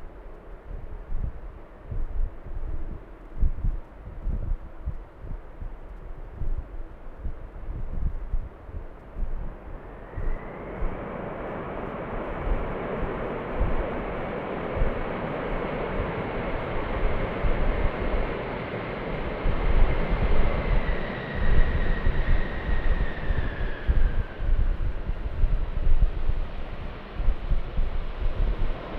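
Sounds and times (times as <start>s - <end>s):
high engine whine: 0.0s - 28.9s
wind buffeting microphone: 0.0s - 28.9s
jet engines roaring: 9.0s - 28.9s.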